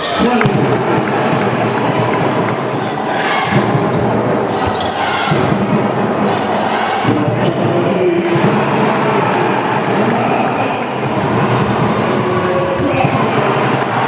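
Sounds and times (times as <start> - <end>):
indoor arena crowd din: 0.0 - 14.0
basketball bouncing: 3.5 - 6.4
shoe squeaks: 3.6 - 8.0.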